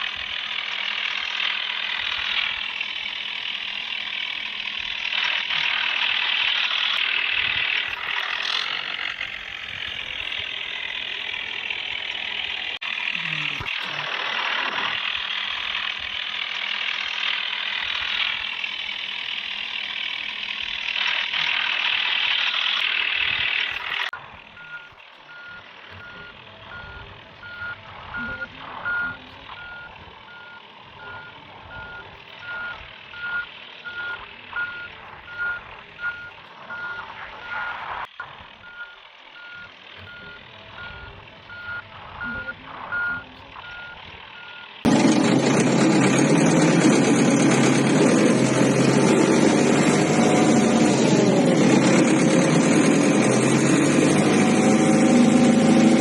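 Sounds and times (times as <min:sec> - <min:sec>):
engine running: 0:00.0 - 0:56.0
reversing alarm beeping: 0:24.5 - 0:37.8, 0:38.6 - 0:51.4.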